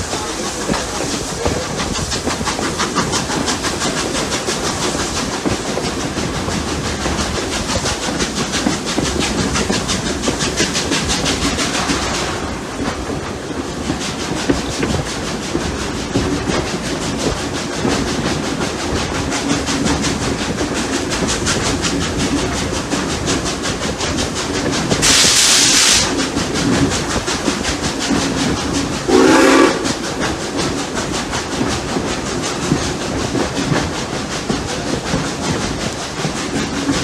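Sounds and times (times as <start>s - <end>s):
rail noise: 0.0s - 37.0s
steam hissing: 0.0s - 37.0s
steam locomotive exhaust beats: 0.0s - 37.0s
steam whistle blast: 29.1s - 29.9s.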